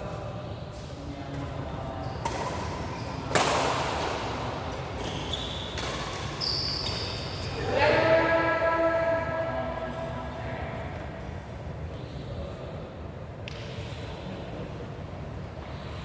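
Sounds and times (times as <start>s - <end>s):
shoes squeaking on court floor: 4.0s - 7.7s.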